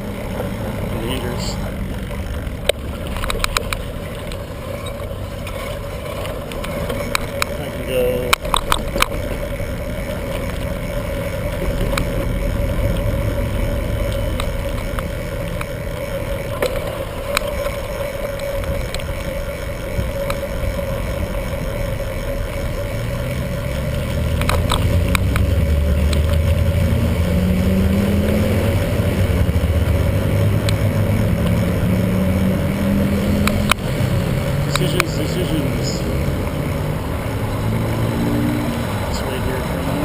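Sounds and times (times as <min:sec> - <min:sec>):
motor vehicle engine rising in pitch: 0:00.0 - 0:40.0
road noise: 0:00.0 - 0:40.0
small rattling clicks: 0:01.8 - 0:23.0, 0:23.6 - 0:26.8.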